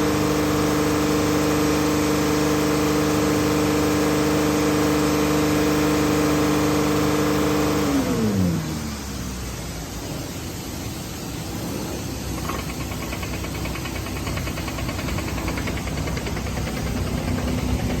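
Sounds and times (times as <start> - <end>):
car engine idling: 7.9 - 18.0.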